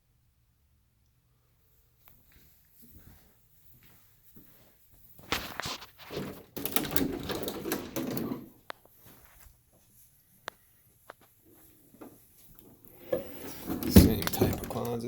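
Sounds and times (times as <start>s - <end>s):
closet door rattling open: 6.0s - 8.6s, 12.7s - 15.0s.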